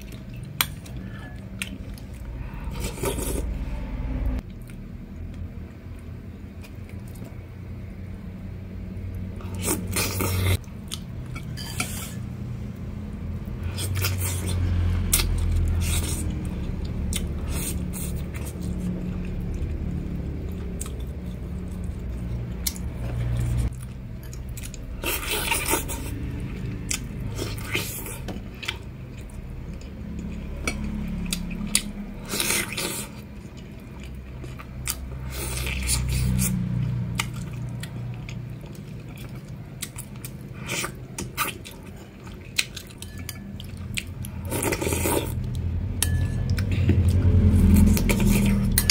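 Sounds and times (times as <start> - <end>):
person chewing food: 0.0 - 3.6, 9.4 - 11.5, 13.6 - 48.9
low steady hum: 0.0 - 48.9
metal spoon clinking on bowl: 46.0 - 46.6.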